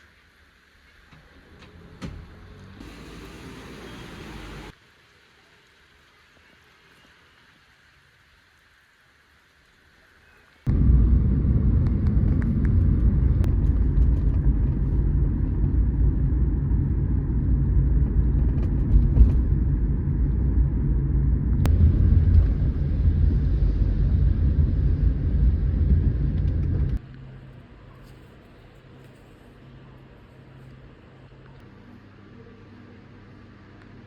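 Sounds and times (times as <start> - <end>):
vehicle rumble: 10.7 - 27.8.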